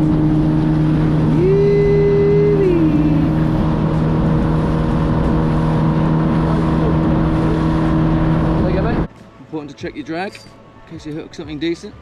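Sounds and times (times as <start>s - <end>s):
boat engine running: 0.0s - 9.1s
wind rumbling on microphone: 0.0s - 9.1s.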